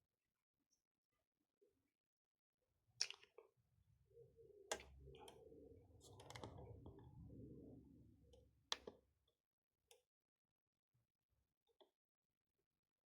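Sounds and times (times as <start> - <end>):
faint low hum: 3.9 - 9.1.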